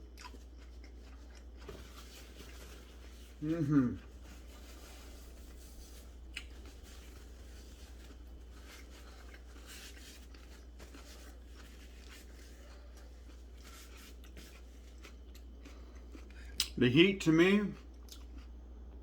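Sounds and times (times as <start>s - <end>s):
steady low hum: 0.0s - 19.0s
soft rustles: 1.2s - 3.4s, 4.0s - 15.0s.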